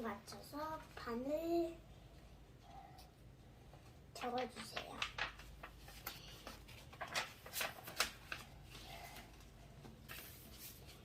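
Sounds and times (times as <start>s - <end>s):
paper rustling and crackling: 4.1s - 11.0s.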